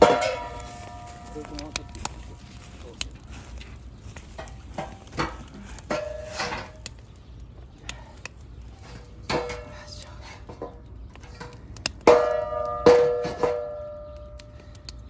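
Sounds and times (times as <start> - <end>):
metal utensil striking iron pan: 0.0 - 2.1, 4.4 - 6.9, 9.3 - 9.7, 11.3 - 14.4.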